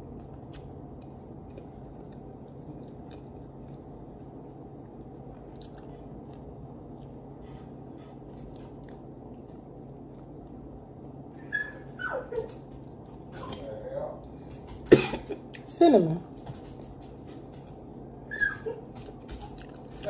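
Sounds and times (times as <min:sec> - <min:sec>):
person chewing bread: 0:00.0 - 0:11.3, 0:16.8 - 0:20.0
steady low hum: 0:00.0 - 0:20.0.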